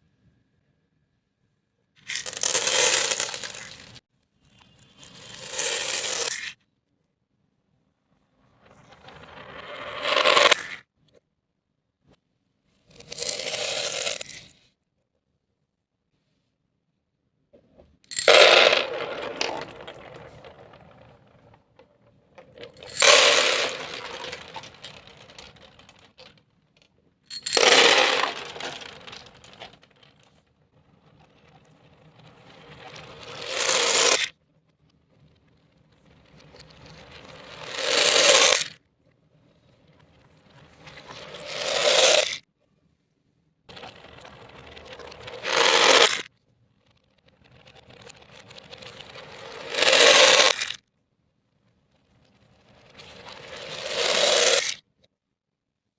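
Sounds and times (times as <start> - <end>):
beads clattering: 2.1 - 4.0, 18.1 - 21.8, 22.4 - 26.4, 27.3 - 30.3.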